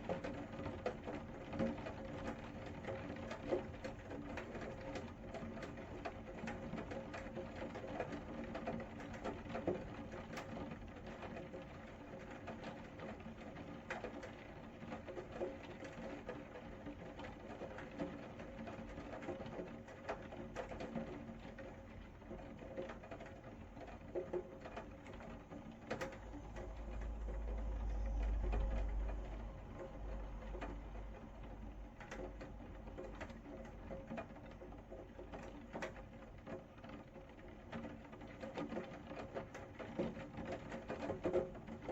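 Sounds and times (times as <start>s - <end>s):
rain pattering on hard surface: 0.0s - 41.9s
low steady hum: 25.0s - 35.4s.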